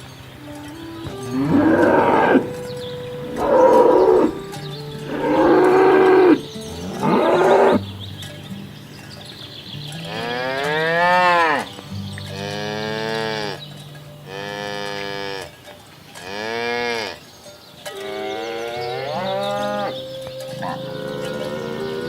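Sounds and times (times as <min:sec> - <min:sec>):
cows mooing: 0:00.8 - 0:07.9, 0:10.1 - 0:11.7, 0:12.3 - 0:13.6, 0:14.3 - 0:15.6, 0:16.2 - 0:17.2, 0:18.0 - 0:22.0.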